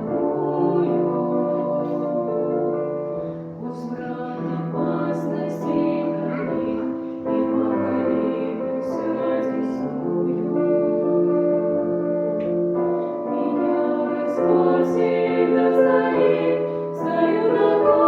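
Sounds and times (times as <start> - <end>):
piano accompaniment: 0.0 - 18.0.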